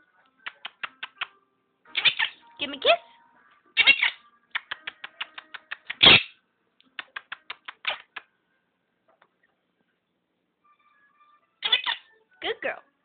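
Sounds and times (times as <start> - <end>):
parrot clicking: 4.5 - 6.2, 6.9 - 8.3.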